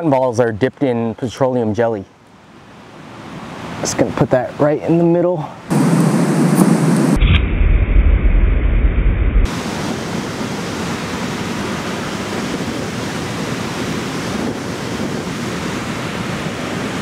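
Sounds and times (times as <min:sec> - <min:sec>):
wind and surf rushing: 0:02.4 - 0:17.0
wind rumble on microphone: 0:05.7 - 0:17.0.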